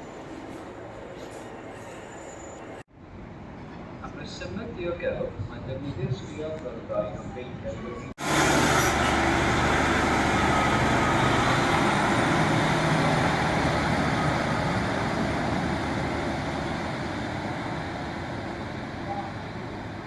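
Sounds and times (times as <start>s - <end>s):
diesel train engine drone: 8.0s - 20.0s.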